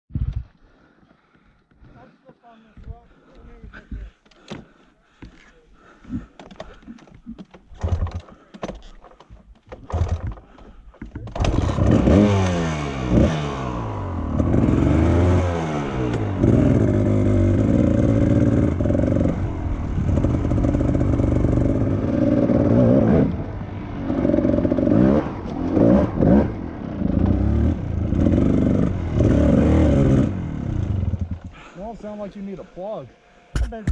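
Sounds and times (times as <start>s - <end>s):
dirt bike engine revving: 9.8s - 10.4s, 11.3s - 32.3s.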